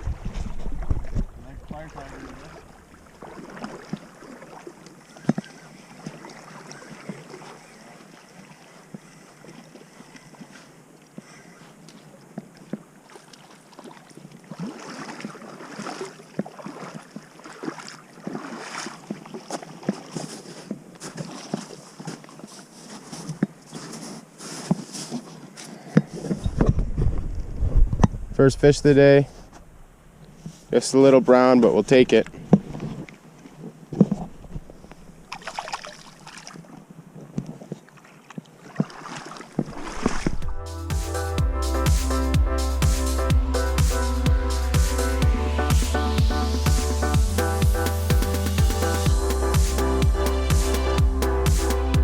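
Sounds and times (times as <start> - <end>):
water splashing and sloshing: 0.0 - 28.3, 31.5 - 52.0.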